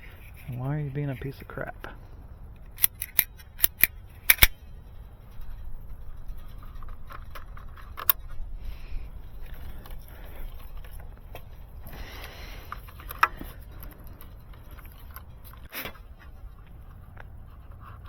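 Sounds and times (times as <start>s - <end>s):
hand tool clicking: 2.8s - 4.5s.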